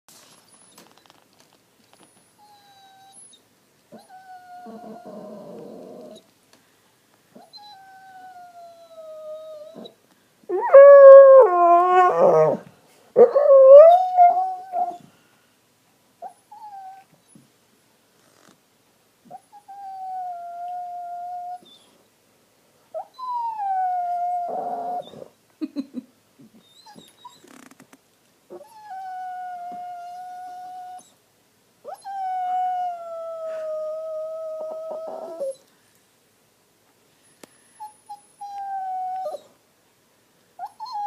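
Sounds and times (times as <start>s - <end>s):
dog whining and howling: 2.4s - 6.3s, 7.4s - 15.1s, 19.3s - 22.0s, 23.0s - 25.3s, 28.5s - 31.2s, 31.8s - 35.7s, 37.8s - 39.6s, 40.6s - 41.0s.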